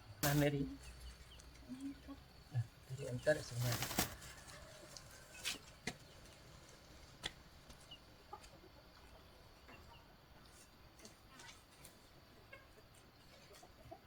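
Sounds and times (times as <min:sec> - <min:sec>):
chickens clucking faintly: 0:00.0 - 0:14.0.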